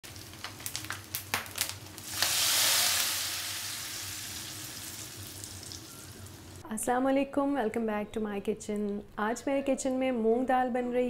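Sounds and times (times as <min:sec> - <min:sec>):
crackles and pops: 0:00.0 - 0:03.8
food frying in oil: 0:00.0 - 0:06.6
loud sizzle: 0:00.0 - 0:06.6.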